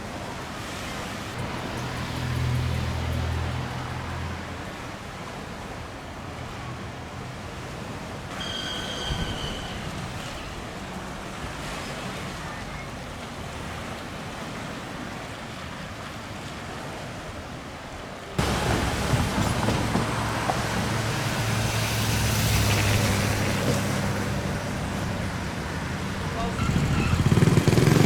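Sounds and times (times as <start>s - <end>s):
street ambience: 0.0s - 15.5s, 16.4s - 28.0s
vehicle engine humming: 1.4s - 4.8s, 18.4s - 28.0s.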